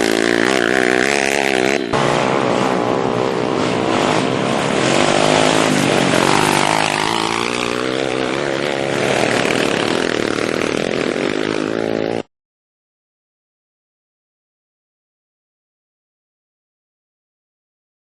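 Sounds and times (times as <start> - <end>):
pit bike engine revving: 0.0 - 12.3.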